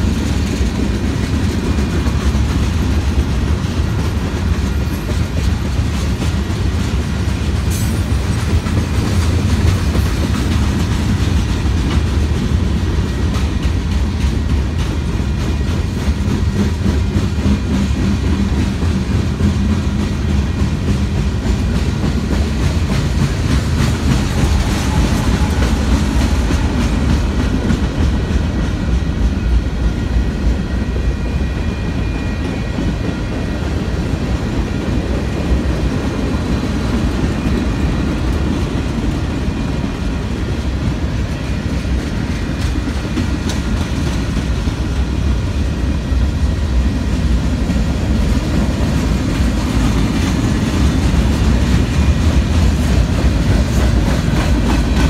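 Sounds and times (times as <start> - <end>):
wheels clacking over rail joints: 0.0 - 29.5, 47.5 - 55.0
freight train rumbling past: 0.0 - 55.0.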